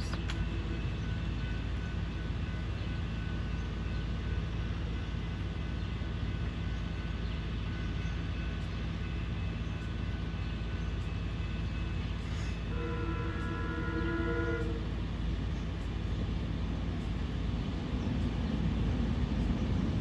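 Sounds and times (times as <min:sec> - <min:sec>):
faint steady tones: 0:00.0 - 0:20.0
train rumbling: 0:00.0 - 0:20.0.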